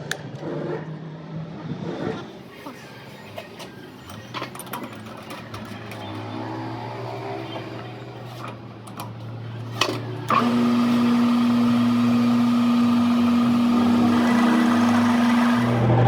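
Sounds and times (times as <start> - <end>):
machine motor running: 9.4 - 16.0.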